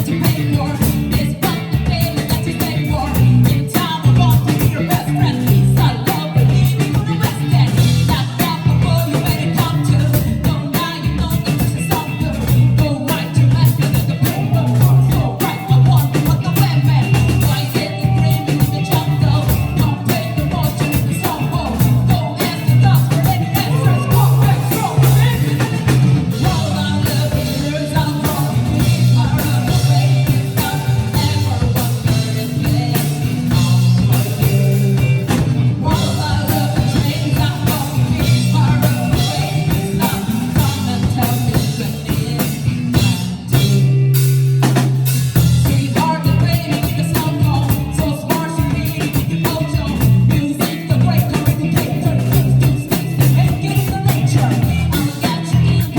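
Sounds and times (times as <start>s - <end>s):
person singing: 0.0s - 44.9s, 45.6s - 55.9s
live band playing: 0.0s - 55.9s.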